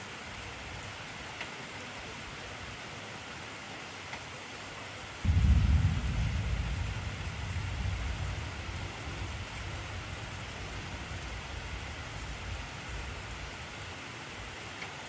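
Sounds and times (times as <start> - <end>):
heavy rain hiss: 0.0 - 15.0
low thunder rumble: 5.2 - 13.9.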